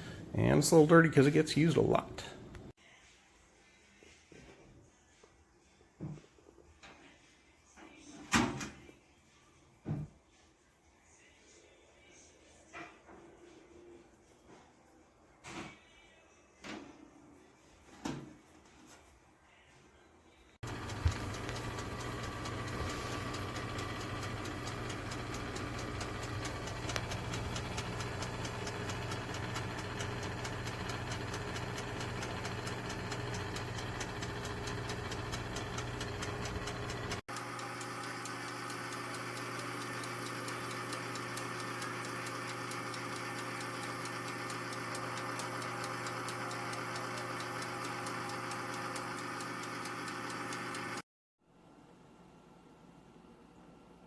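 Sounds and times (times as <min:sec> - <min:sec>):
fast even ticking: 0:20.6 - 0:51.0
toaster oven humming: 0:20.6 - 0:51.0.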